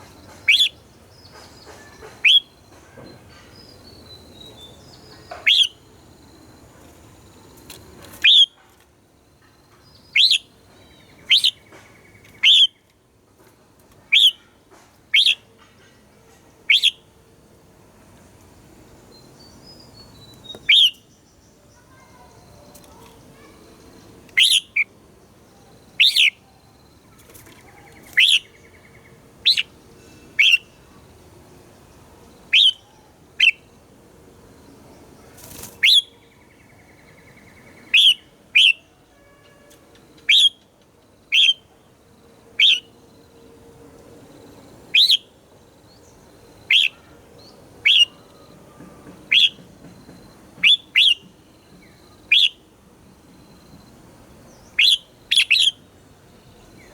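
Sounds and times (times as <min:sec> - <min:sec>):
bird whistled calls: 0:00.5 - 0:00.8, 0:02.2 - 0:02.5, 0:05.4 - 0:05.8, 0:08.2 - 0:08.6, 0:10.1 - 0:10.5, 0:11.3 - 0:11.6, 0:12.4 - 0:12.8, 0:14.1 - 0:14.4, 0:15.2 - 0:15.4, 0:16.7 - 0:17.0, 0:20.4 - 0:21.0, 0:24.4 - 0:24.9, 0:26.0 - 0:26.4, 0:28.0 - 0:28.6, 0:30.4 - 0:30.7, 0:32.5 - 0:32.8, 0:35.8 - 0:36.2, 0:37.9 - 0:38.8, 0:40.3 - 0:40.6, 0:41.3 - 0:41.6, 0:42.6 - 0:42.9, 0:45.0 - 0:45.3, 0:46.7 - 0:47.0, 0:47.8 - 0:48.3, 0:49.3 - 0:49.6, 0:50.6 - 0:51.3, 0:52.2 - 0:52.6, 0:54.8 - 0:55.8.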